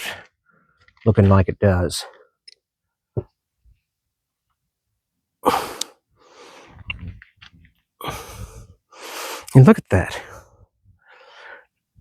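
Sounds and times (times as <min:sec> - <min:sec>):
person bursting out breath: 0:05.4 - 0:07.1, 0:08.0 - 0:09.4
faint breathing: 0:05.4 - 0:07.2, 0:08.0 - 0:09.5, 0:10.3 - 0:11.8.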